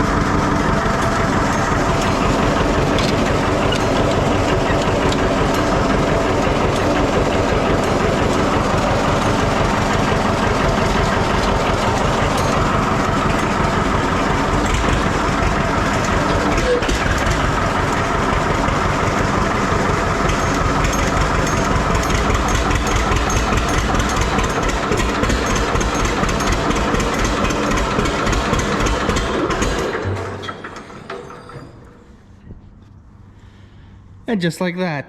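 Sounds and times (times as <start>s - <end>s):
tractor engine idling: 0.0s - 31.2s.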